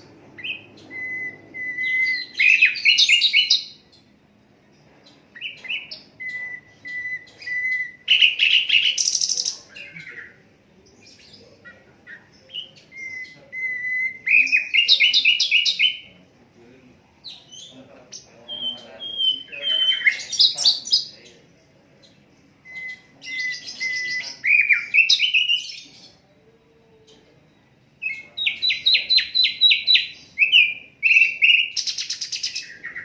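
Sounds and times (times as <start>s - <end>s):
bird singing whistled notes: 0.3s - 4.1s, 5.0s - 10.4s, 12.4s - 16.1s, 18.5s - 21.1s, 22.4s - 26.2s, 27.5s - 33.0s.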